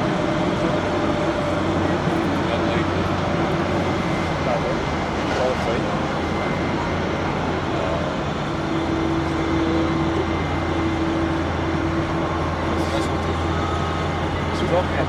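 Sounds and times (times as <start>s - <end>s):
continuous low machine hum: 0.0s - 15.0s
steady whining tone: 0.0s - 15.0s.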